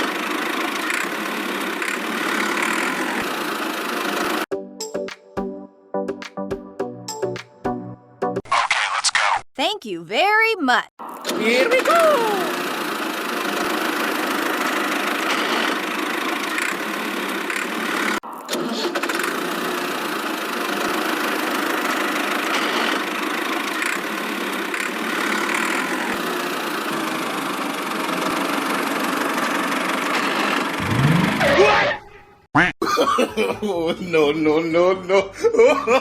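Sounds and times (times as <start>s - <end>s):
small motor humming: 0.0s - 4.4s, 11.6s - 18.2s, 18.8s - 31.4s.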